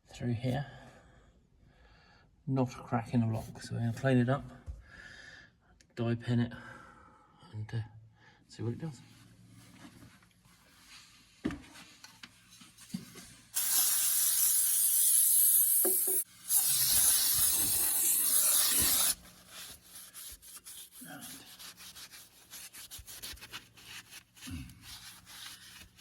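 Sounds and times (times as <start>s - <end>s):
aerosol can spraying: 13.6s - 21.0s
faint rubbing: 17.4s - 26.0s.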